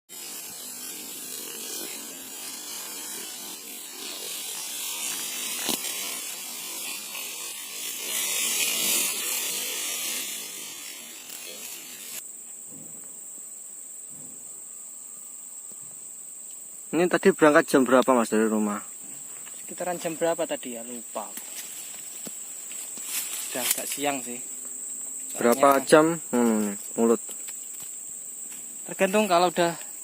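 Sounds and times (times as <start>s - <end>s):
high-pitched insect drone: 0.1s - 30.0s
rough rustling hiss: 0.1s - 30.0s.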